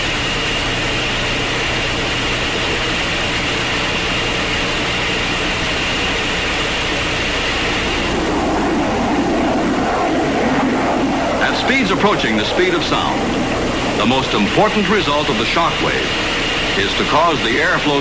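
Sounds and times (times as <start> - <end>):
high jet whine: 0.0 - 18.0
jet aircraft roar: 0.0 - 18.0.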